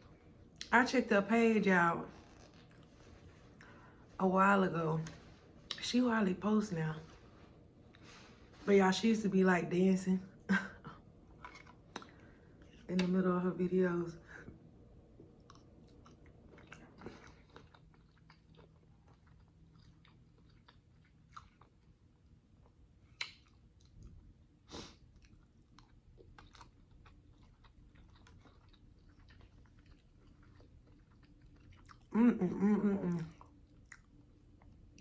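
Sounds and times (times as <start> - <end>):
close-up chewing: 10.9 - 13.0, 15.2 - 35.0
wet mouth clicks: 23.2 - 23.9.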